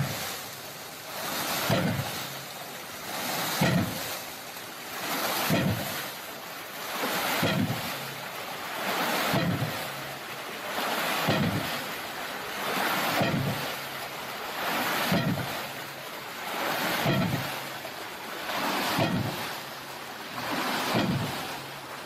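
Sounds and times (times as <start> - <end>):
water spilling: 0.0 - 22.0
low thump of valve slamming: 1.7 - 2.2, 3.5 - 4.1, 5.5 - 6.0, 7.4 - 7.9, 9.3 - 9.8, 11.2 - 11.7, 13.2 - 13.6, 15.1 - 15.5, 17.0 - 17.5, 19.0 - 19.4, 20.9 - 21.4.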